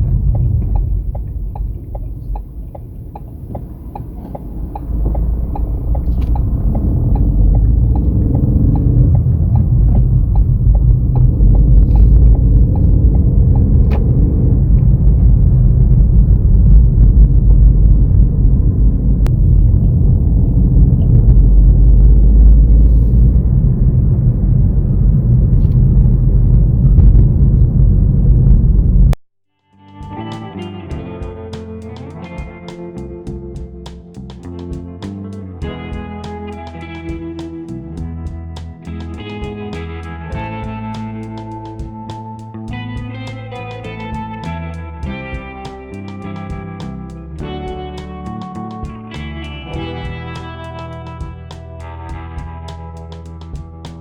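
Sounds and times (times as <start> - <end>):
motorcycle engine rumble: 0.0 - 29.2, 30.0 - 54.0
wind on microphone: 0.0 - 29.2.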